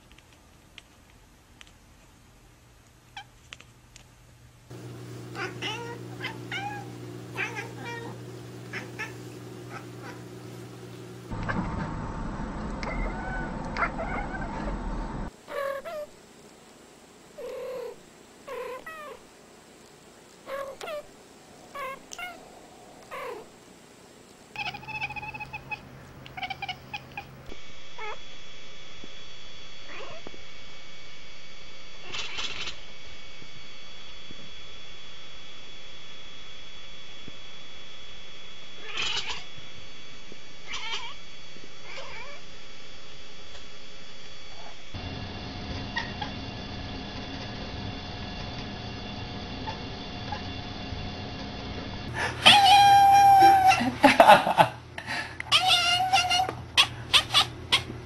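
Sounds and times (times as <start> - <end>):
steady low hum: 4.3 - 55.6
cat chirping meows: 5.4 - 10.2, 12.8 - 14.7, 20.5 - 21.1, 21.7 - 22.4, 24.6 - 25.8, 26.4 - 27.3, 28.0 - 28.2, 32.0 - 32.8, 38.8 - 39.4, 40.6 - 41.2, 41.8 - 42.4, 52.4 - 53.8, 55.5 - 57.9.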